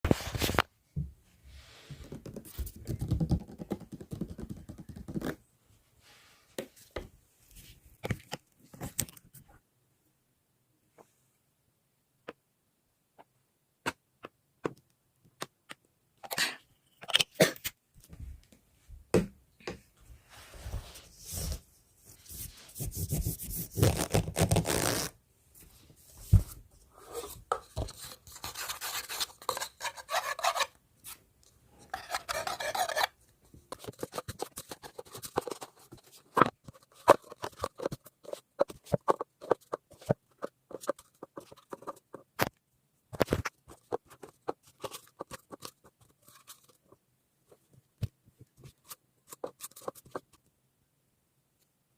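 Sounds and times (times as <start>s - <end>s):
small animal scratching and gnawing: 31.9s - 33.2s, 43.2s - 47.0s.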